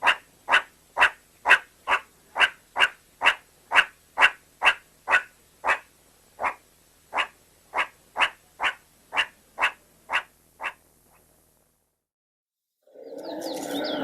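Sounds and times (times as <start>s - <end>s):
animal short calls: 0.0s - 10.8s.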